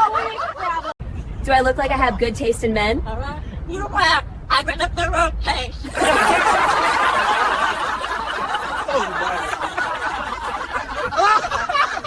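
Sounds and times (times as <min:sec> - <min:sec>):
people laughing: 0:00.0 - 0:01.0, 0:05.8 - 0:12.0.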